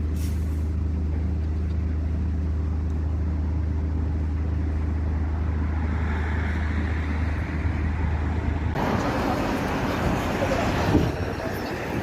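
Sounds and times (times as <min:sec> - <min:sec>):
vehicle engine running: 0:00.0 - 0:05.8.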